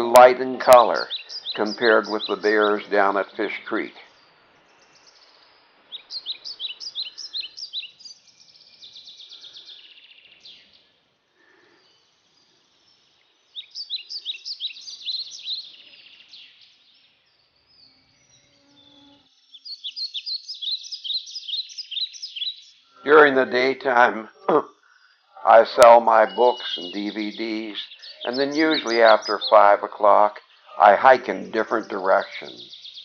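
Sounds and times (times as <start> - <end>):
songbird singing: 0.0 - 33.0.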